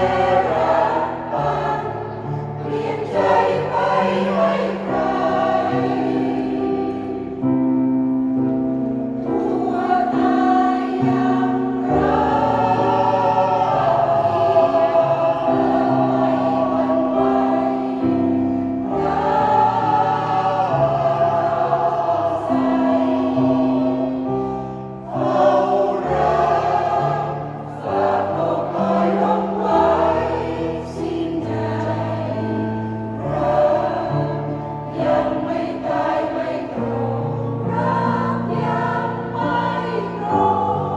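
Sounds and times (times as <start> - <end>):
choir singing in harmony: 0.0 - 40.9.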